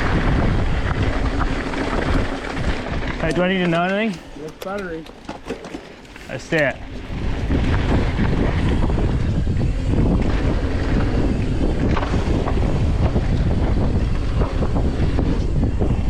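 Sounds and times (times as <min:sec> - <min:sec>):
wind rushing over microphone: 0:00.0 - 0:16.0
bike knocks on trail: 0:01.4 - 0:07.9.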